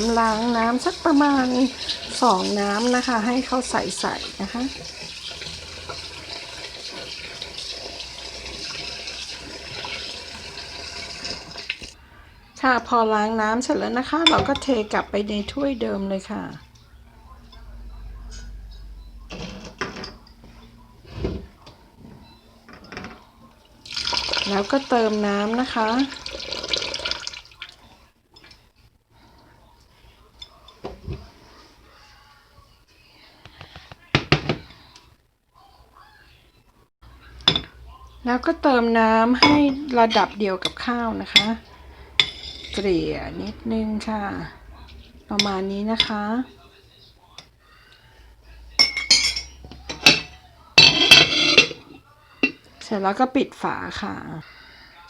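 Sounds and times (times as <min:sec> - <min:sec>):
water pouring into a bowl: 0:00.0 - 0:12.0, 0:23.8 - 0:27.9.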